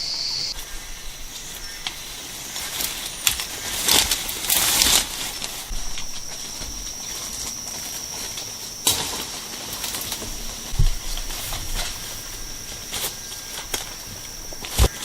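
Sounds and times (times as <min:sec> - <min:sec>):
high-pitched insect drone: 0:00.0 - 0:15.0
rustle: 0:00.0 - 0:15.0
dull thump: 0:10.2 - 0:11.9.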